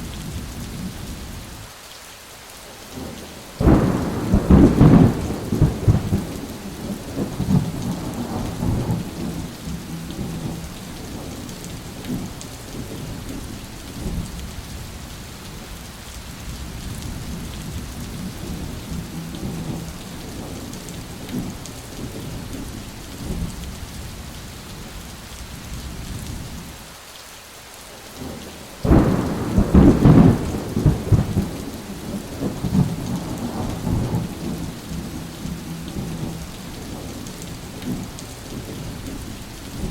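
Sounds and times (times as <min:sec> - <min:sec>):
steady rain: 0:00.0 - 0:39.9
sharp thunderclap: 0:03.6 - 0:09.5, 0:28.2 - 0:38.8
rolling thunder: 0:03.6 - 0:14.3, 0:28.2 - 0:39.9.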